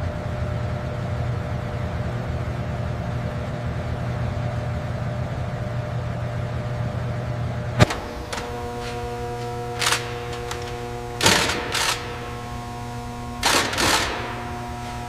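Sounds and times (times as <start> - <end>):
mechanical hum with tones: 0.0 - 15.0
sharp click: 7.8 - 12.6
noisy hiss: 7.8 - 15.0.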